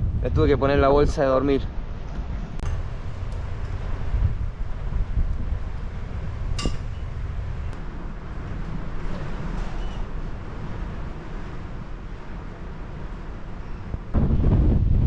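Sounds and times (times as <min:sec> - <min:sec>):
wind buffeting microphone: 0:00.0 - 0:15.0
sharp clink: 0:06.6 - 0:07.1.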